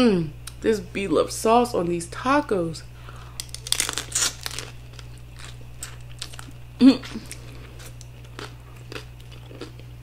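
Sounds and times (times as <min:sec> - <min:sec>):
crunchy taco chewing: 0:03.4 - 0:10.0.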